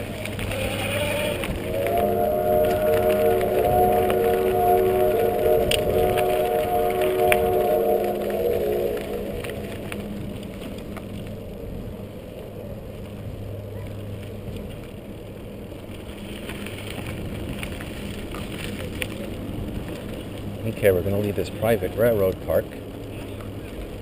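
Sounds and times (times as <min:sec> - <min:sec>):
tyre and wind rumble: 0:00.0 - 0:24.0
chord of held tones: 0:01.3 - 0:11.1.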